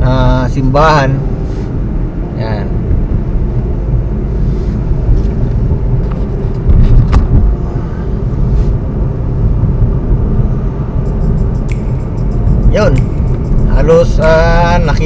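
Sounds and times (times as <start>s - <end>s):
car engine and tyre rumble: 0.0s - 15.0s
brief click: 11.6s - 11.9s.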